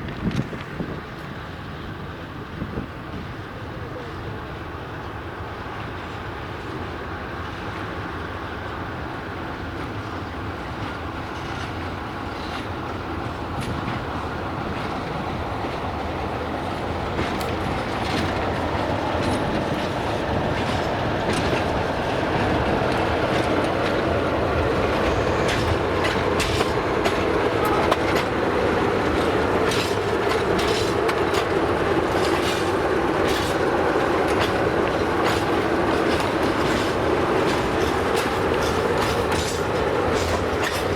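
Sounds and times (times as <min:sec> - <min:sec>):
train running on track: 0:00.0 - 0:40.9
wheels clicking over rail joints: 0:08.8 - 0:40.9.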